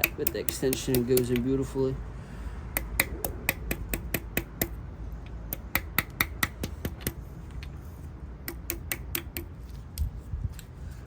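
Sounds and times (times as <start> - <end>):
rubber mallet tapping metal: 0.0 - 1.6, 2.7 - 4.8, 5.5 - 7.2, 8.4 - 9.5.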